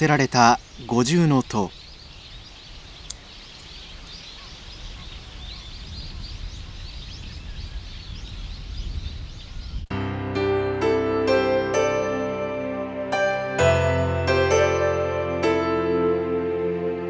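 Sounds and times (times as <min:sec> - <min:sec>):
small birds chirping: 0:00.0 - 0:09.9
piano music: 0:09.9 - 0:17.0.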